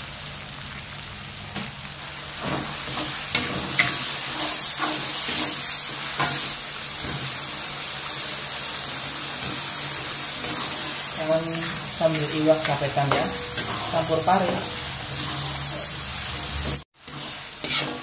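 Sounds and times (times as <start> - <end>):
sambal sizzling in hot oil: 0.0 - 18.0
metal spatula scraping wok: 2.4 - 7.3, 9.4 - 18.0.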